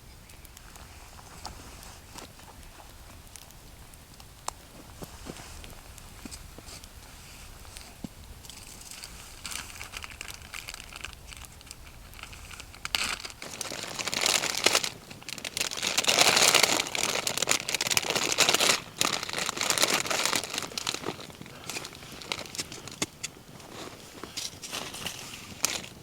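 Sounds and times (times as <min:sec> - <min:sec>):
crinkling rustling handling noise: 0:04.6 - 0:26.0.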